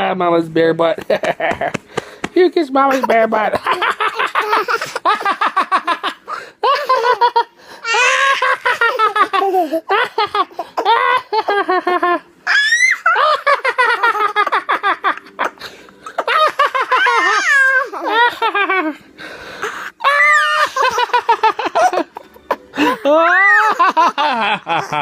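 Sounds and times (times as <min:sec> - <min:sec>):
toddler laughing: 0:02.9 - 0:18.8, 0:20.0 - 0:25.0
toddler squealing: 0:12.5 - 0:13.2, 0:17.0 - 0:18.1, 0:20.0 - 0:20.7, 0:23.2 - 0:23.8.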